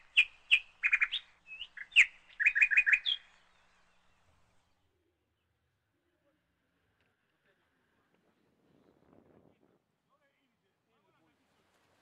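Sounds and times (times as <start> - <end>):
small bird chirping: 0.0 - 5.6.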